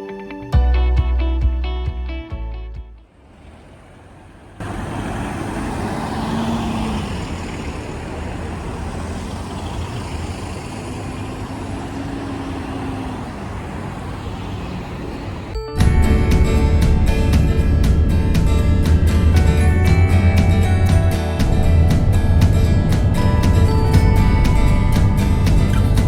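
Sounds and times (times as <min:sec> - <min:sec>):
background music: 0:00.0 - 0:03.1, 0:15.6 - 0:26.0
faint engine hum: 0:03.0 - 0:26.0
road and tyre noise: 0:03.0 - 0:26.0.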